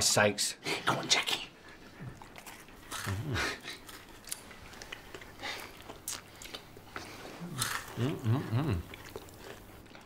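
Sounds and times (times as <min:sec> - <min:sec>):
people chewing crunchy cake: 0:01.6 - 0:10.0
mouth noises: 0:02.9 - 0:03.8, 0:07.3 - 0:09.1.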